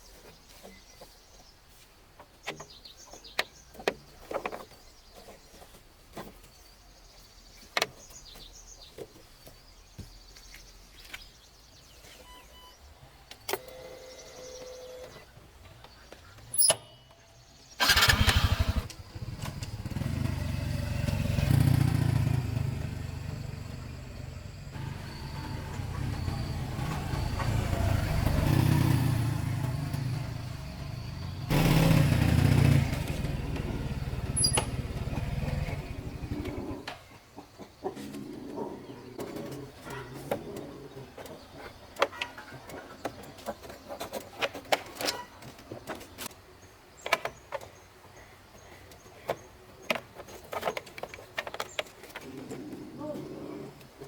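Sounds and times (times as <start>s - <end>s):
small engine running: 17.8s - 36.5s.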